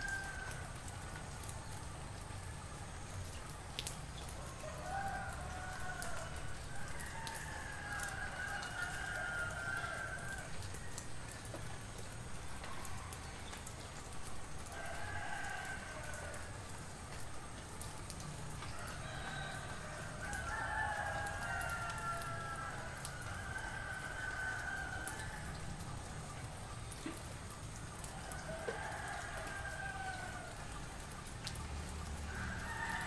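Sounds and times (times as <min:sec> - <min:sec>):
roosters crowing: 0:04.5 - 0:10.6, 0:14.8 - 0:16.6, 0:18.7 - 0:25.7, 0:28.1 - 0:30.8, 0:32.3 - 0:33.0.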